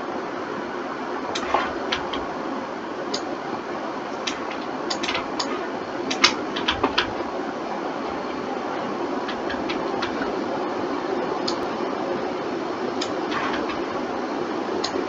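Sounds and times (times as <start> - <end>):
mouse and keyboard clicks: 1.4 - 2.3, 4.2 - 7.3, 9.3 - 10.3, 13.0 - 13.9.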